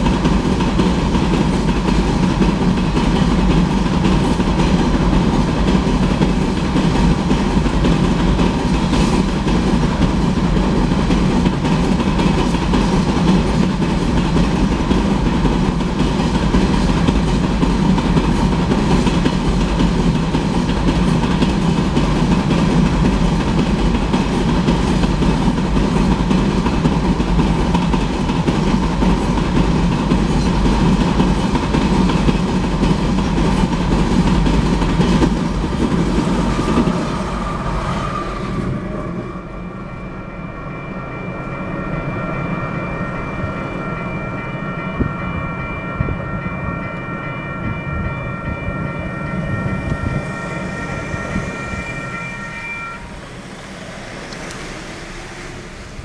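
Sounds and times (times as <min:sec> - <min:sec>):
freight train rumble and wheel clatter: 0:00.0 - 0:56.0
crossing bell ringing: 0:38.8 - 0:55.8.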